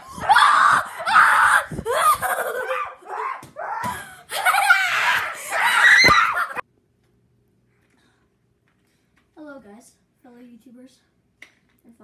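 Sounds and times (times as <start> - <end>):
person screaming: 0.0 - 6.6.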